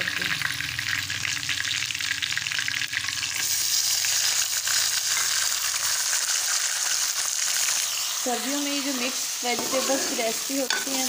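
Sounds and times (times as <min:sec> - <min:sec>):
chicken sizzling in hot oil: 0:00.0 - 0:11.0
metal spoon stirring: 0:09.5 - 0:11.0.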